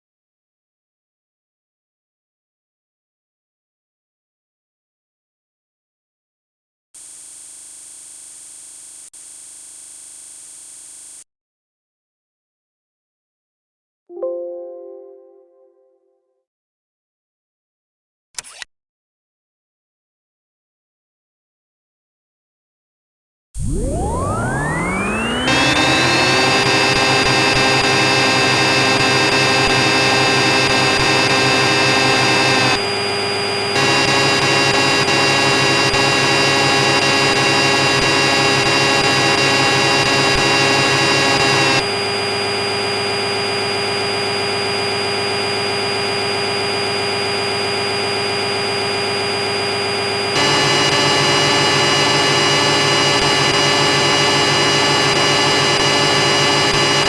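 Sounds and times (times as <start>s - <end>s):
spindle high-pitched whine: 7.0s - 11.2s, 23.6s - 57.0s.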